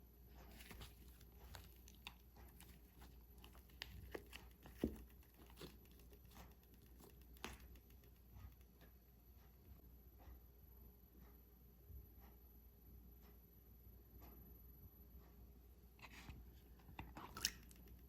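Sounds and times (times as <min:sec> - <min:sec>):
low steady hum: 0:00.0 - 0:18.0
light crinkling: 0:00.2 - 0:09.0
small clicks and taps: 0:00.5 - 0:09.1, 0:16.8 - 0:18.0.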